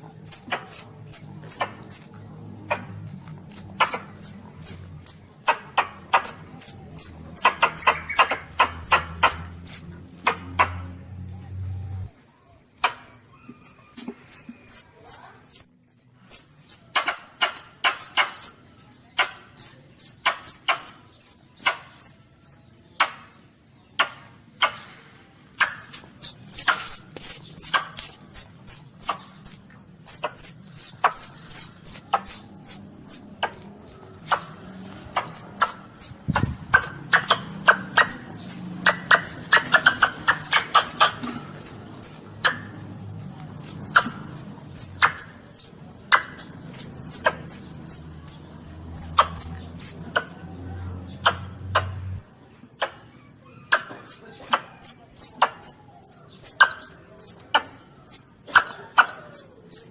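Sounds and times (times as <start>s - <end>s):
baby civet squeaking: 0.0s - 10.8s, 12.8s - 22.6s, 25.7s - 50.3s, 53.5s - 59.9s.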